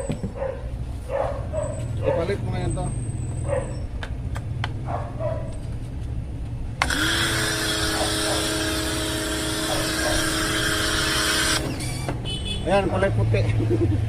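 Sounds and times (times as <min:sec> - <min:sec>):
pressure washer motor hum: 0:06.8 - 0:12.1.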